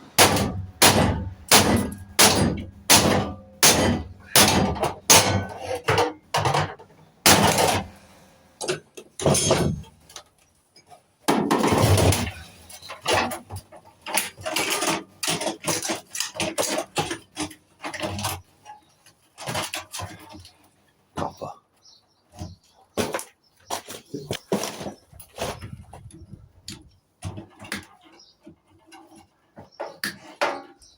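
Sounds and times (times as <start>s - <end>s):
sheet metal clanking and scraping: 0.1s - 8.0s, 8.7s - 10.0s, 11.3s - 18.8s.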